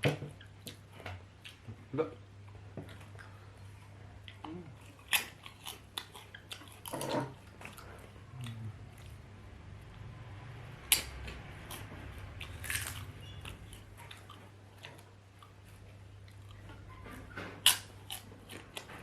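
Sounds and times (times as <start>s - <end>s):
person chewing potatoes: 2.8s - 9.3s, 10.8s - 19.0s.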